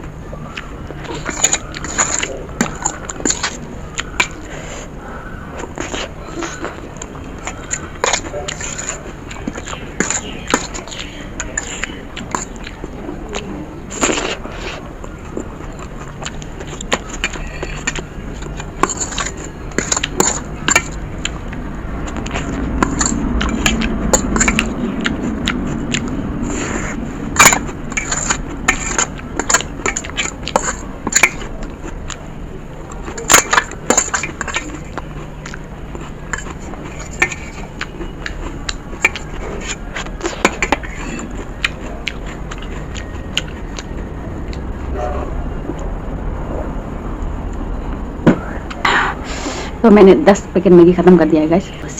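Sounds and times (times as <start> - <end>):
close eating sounds: 0.0 - 51.9.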